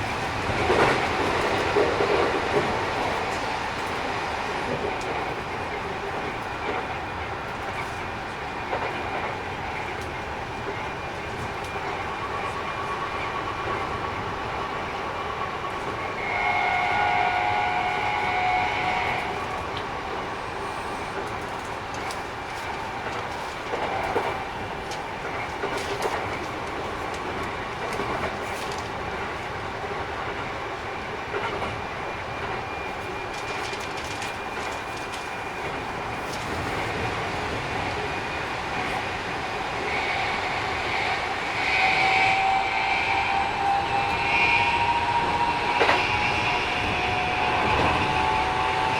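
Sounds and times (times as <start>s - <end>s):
electric train inverter whine: 0.0s - 48.9s
rail-joint clacks: 0.0s - 48.9s
train rail noise: 0.0s - 48.9s
train horn: 16.0s - 19.8s, 39.1s - 48.9s.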